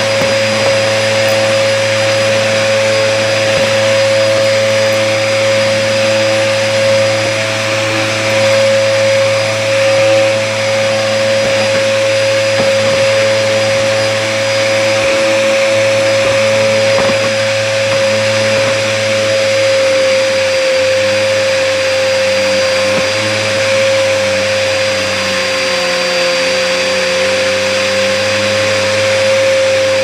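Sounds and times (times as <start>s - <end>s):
vacuum cleaner whining: 0.0s - 30.0s.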